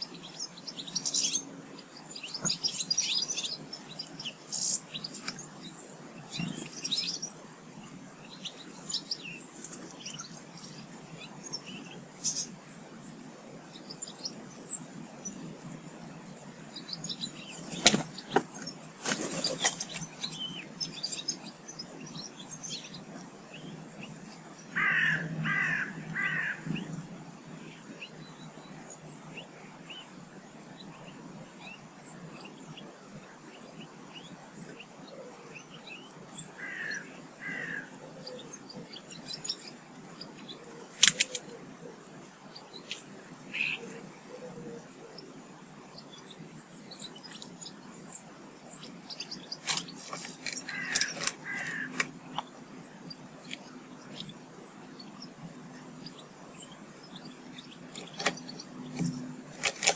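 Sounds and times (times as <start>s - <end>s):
small birds chirping: 0.0s - 59.9s
crow cawing: 24.8s - 26.7s, 36.6s - 37.9s, 50.7s - 52.0s.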